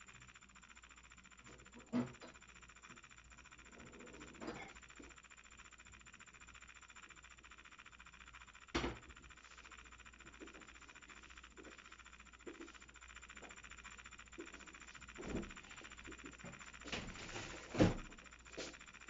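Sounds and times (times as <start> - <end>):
small motor whirring: 0.0 - 19.0.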